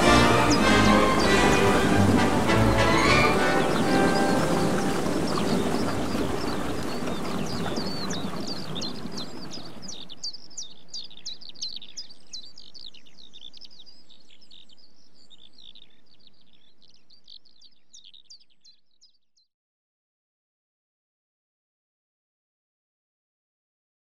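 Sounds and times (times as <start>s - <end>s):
rushing noise: 0.0s - 9.4s
small birds chirping and twittering: 0.0s - 19.5s.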